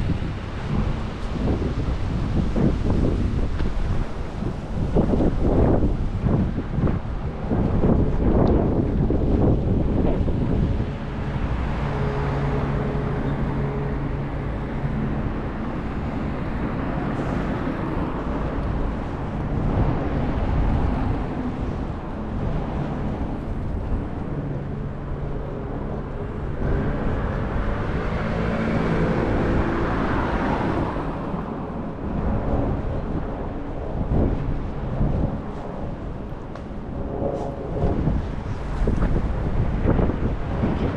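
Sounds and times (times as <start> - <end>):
vehicle engines passing: 0.0 - 40.9
wind on microphone: 0.0 - 40.9.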